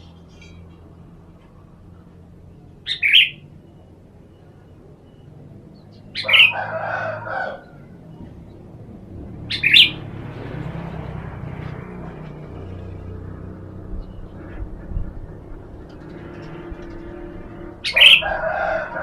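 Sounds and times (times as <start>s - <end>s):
bird calling: 1.4s - 8.8s, 9.4s - 10.1s, 13.9s - 19.0s.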